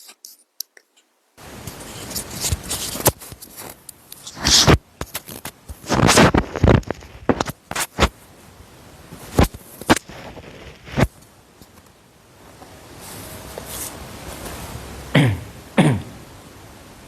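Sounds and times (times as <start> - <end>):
rustling and scraping: 1.4 - 8.5, 9.1 - 15.0.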